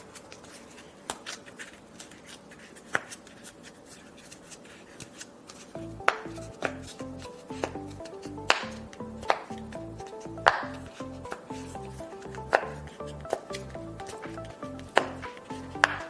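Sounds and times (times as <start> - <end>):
clicks and snips of craft work: 0.1 - 11.5
background music with bass line: 5.8 - 16.0.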